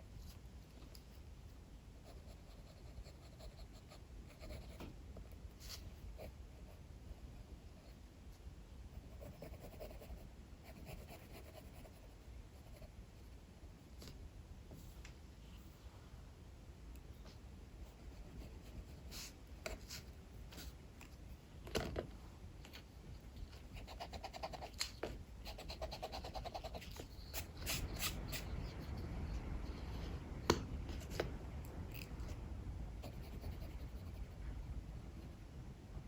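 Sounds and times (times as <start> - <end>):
pencil scratching on paper: 2.0 - 4.8, 9.0 - 13.4, 23.3 - 29.1.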